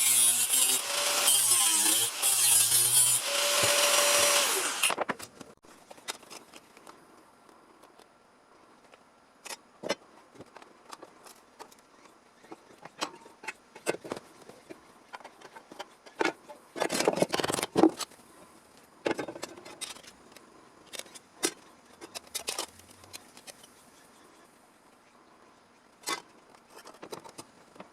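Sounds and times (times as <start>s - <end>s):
rasping scrape: 0.0s - 5.0s.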